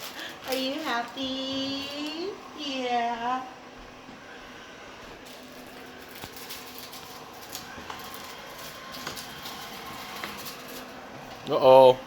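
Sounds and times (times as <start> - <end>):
robot vacuum motor whirring: 5.3 - 11.3.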